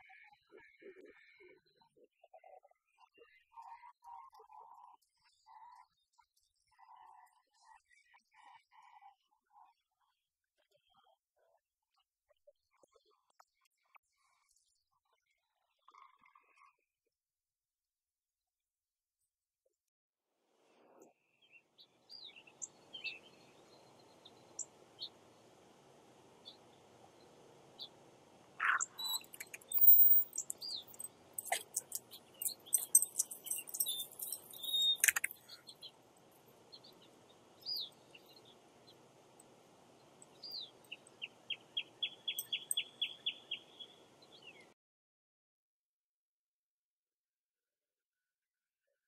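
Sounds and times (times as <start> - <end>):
songbirds chirping: 0.0 - 9.7, 20.9 - 44.8
faint background hiss: 21.8 - 44.6
bird trilling: 28.6 - 35.6
sharp clicks and high jingling: 28.6 - 36.5.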